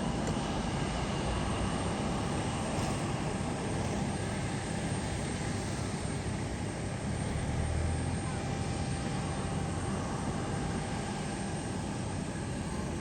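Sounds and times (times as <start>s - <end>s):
airliner engines running: 0.0s - 13.0s.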